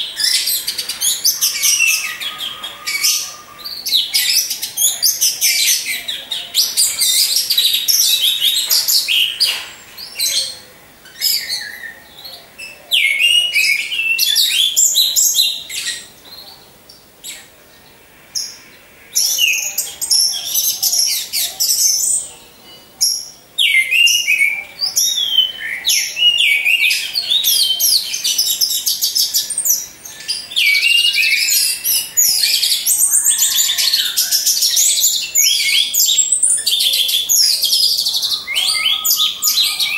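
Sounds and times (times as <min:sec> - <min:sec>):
thrush singing: 0:29.9 - 0:39.9.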